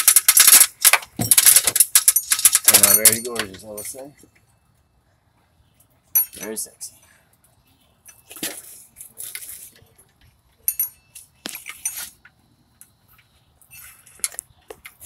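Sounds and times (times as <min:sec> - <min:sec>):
metal clinking and jangling: 0:00.0 - 0:04.3, 0:06.1 - 0:06.6, 0:08.0 - 0:12.2, 0:13.6 - 0:14.4.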